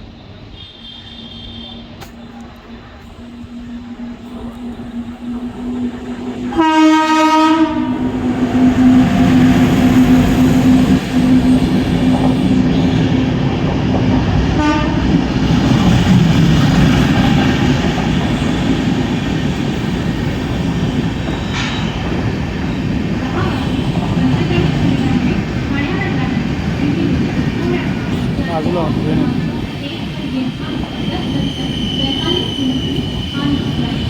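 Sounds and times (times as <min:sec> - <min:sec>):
train rumbling on rails: 0:00.0 - 0:34.0
train horn: 0:00.5 - 0:02.1, 0:06.3 - 0:10.6, 0:14.5 - 0:15.3.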